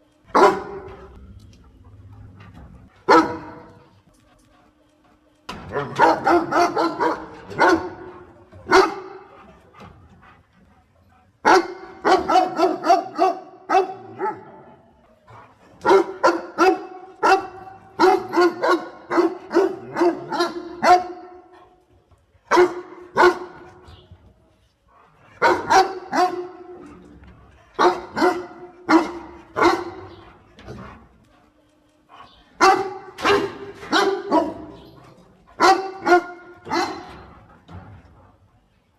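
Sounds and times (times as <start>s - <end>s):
dog barking: 0.3s - 1.1s, 3.0s - 3.8s, 5.8s - 9.3s, 11.4s - 14.7s, 15.8s - 21.5s, 22.5s - 23.6s, 25.4s - 26.8s, 27.8s - 30.2s, 32.6s - 34.9s, 35.6s - 37.2s.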